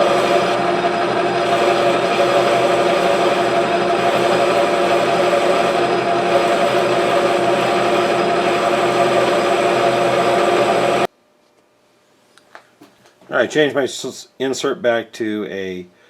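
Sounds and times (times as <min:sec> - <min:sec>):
metal lathe running: 0:00.0 - 0:11.1.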